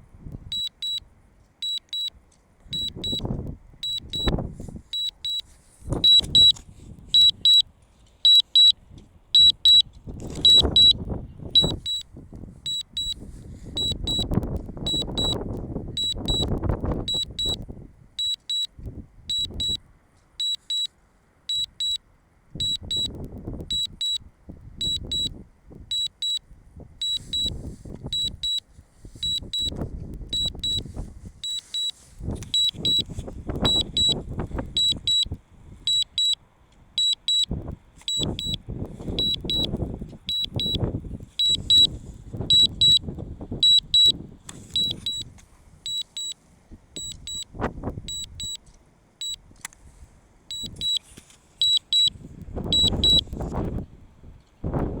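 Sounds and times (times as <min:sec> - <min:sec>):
remote controller warning beeps: 0:00.5 - 0:01.0, 0:01.6 - 0:07.6, 0:08.2 - 0:08.8, 0:09.4 - 0:15.4, 0:16.0 - 0:17.6, 0:18.2 - 0:19.8, 0:20.4 - 0:20.9, 0:21.5 - 0:22.0, 0:22.6 - 0:24.2, 0:24.8 - 0:26.4, 0:27.0 - 0:28.6, 0:29.2 - 0:36.4, 0:37.0 - 0:37.5, 0:38.1 - 0:45.3, 0:45.9 - 0:46.4, 0:47.0 - 0:47.5, 0:48.1 - 0:48.6, 0:50.5 - 0:53.4
wind buffeting microphone: 0:52.1 - 0:55.0.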